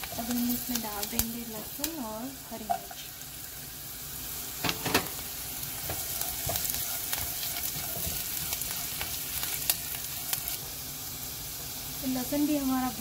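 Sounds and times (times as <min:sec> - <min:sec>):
onions sizzling in hot fat: 0:00.0 - 0:13.0
spatula scraping pan: 0:04.7 - 0:10.6.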